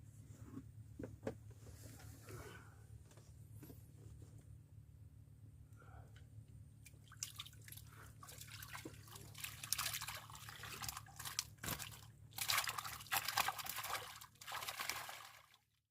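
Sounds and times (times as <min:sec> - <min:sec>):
steady low hum: 0:00.0 - 0:13.1
water splashing and dripping: 0:06.8 - 0:15.6.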